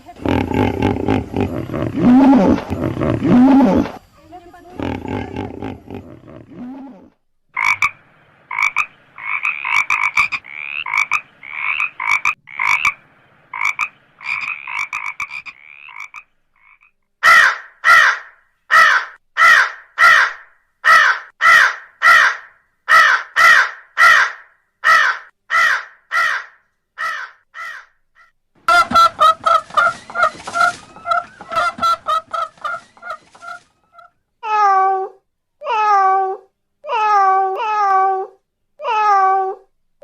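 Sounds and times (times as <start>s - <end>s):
frogs croaking: 0.1s - 6.6s, 7.6s - 20.4s.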